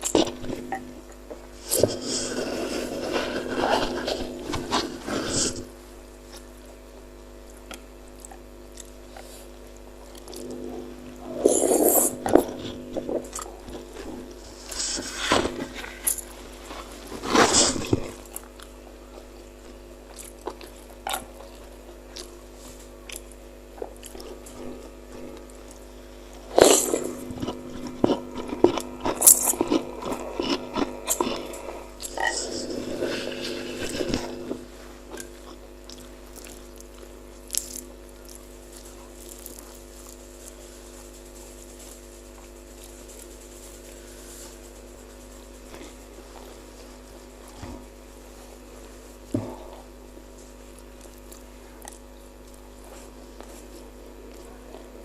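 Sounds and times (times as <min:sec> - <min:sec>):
faint steady hum: 0:00.0 - 0:55.0
biting and chewing: 0:07.4 - 0:40.8.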